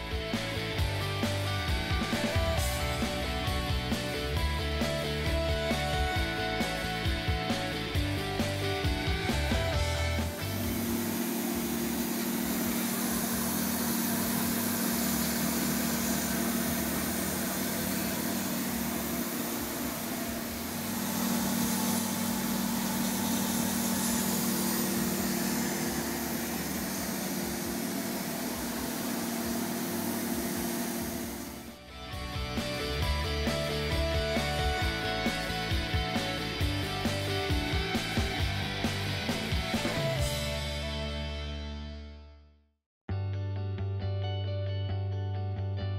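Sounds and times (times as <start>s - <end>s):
cnc router spindle whine: 8.4s - 31.8s.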